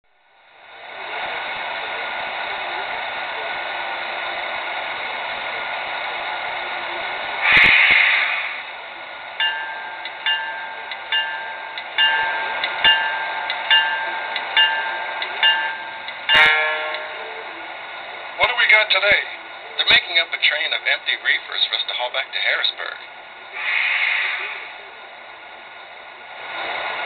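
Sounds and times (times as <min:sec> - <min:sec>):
electric locomotive hiss and hum: 0:00.1 - 0:27.0
loud burst of air: 0:07.4 - 0:09.0, 0:23.5 - 0:24.8
locomotive bell ringing: 0:08.7 - 0:19.2.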